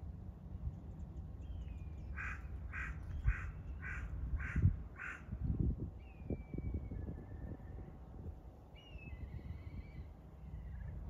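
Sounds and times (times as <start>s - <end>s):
steady low rumble: 0.0s - 11.0s
bird calling: 1.4s - 5.4s.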